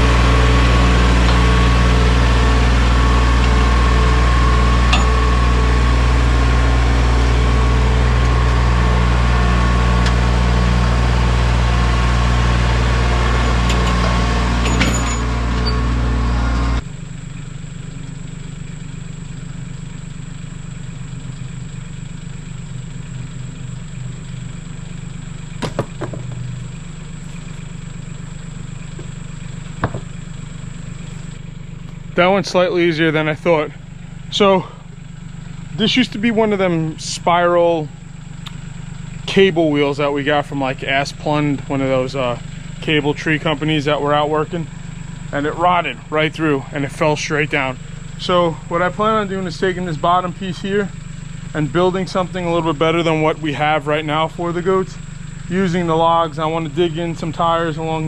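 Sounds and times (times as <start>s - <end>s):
tractor diesel engine running: 0.0s - 58.0s
light knocks: 29.8s - 30.1s.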